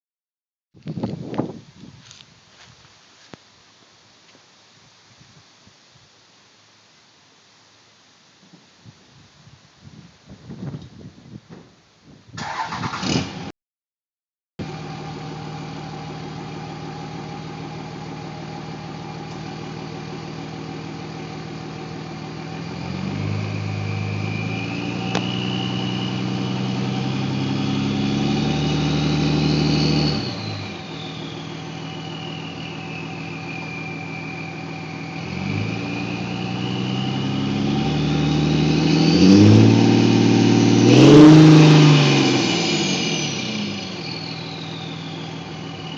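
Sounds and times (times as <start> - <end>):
diesel engine idling and revving: 14.6 - 45.9
turbo whistle: 29.8 - 37.5, 43.0 - 45.9.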